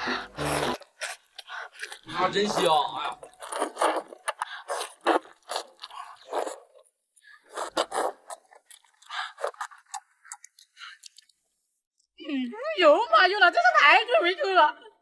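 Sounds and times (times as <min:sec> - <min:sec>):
biting and chewing food: 0:00.2 - 0:11.4.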